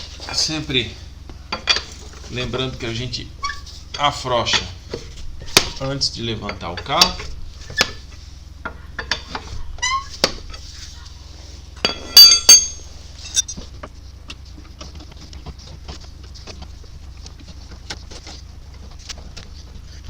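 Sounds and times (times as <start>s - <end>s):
ringing metallic clanks: 11.8s - 13.6s
wheel wrench clinking on wheel nuts: 11.8s - 13.6s.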